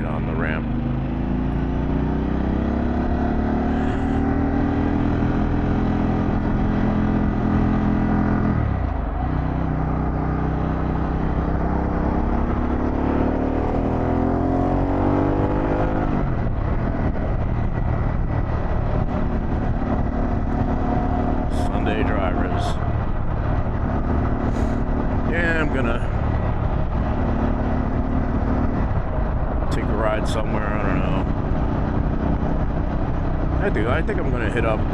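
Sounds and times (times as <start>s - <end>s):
motorcycle engine accelerating: 0.0s - 34.9s
wind rush over microphone: 3.6s - 34.9s.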